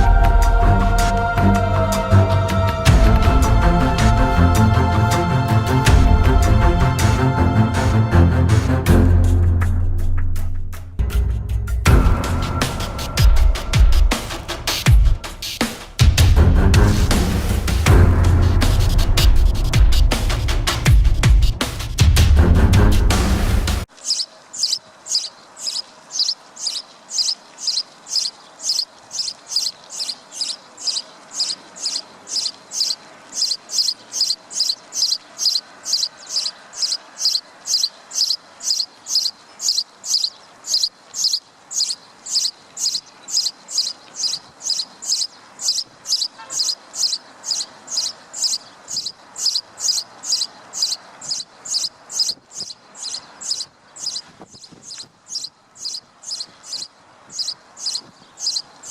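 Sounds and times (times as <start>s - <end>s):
faint background hiss: 23.8s - 58.9s
high-pitched chirp: 24.0s - 58.9s.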